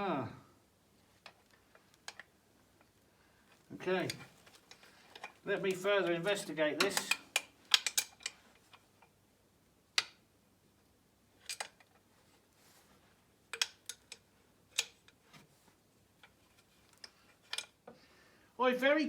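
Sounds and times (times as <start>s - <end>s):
metallic clicks and clinks: 3.5s - 9.1s, 11.4s - 12.0s, 13.5s - 15.2s, 16.2s - 17.8s.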